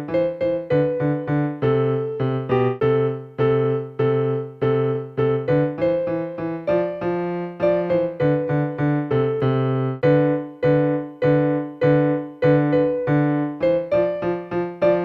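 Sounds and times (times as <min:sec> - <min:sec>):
electronic keyboard piano playing: 0:00.0 - 0:15.0.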